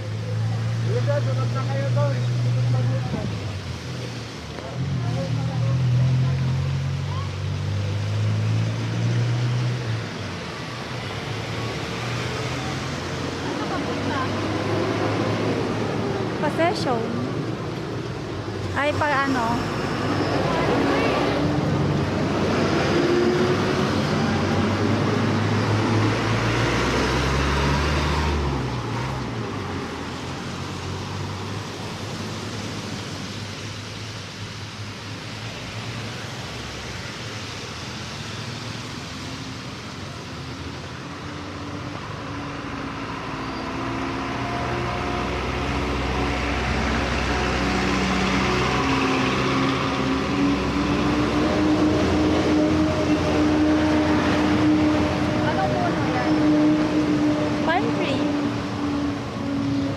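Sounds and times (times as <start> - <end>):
traffic hum: 0.0 - 59.9
vehicle engine close by: 0.0 - 59.9.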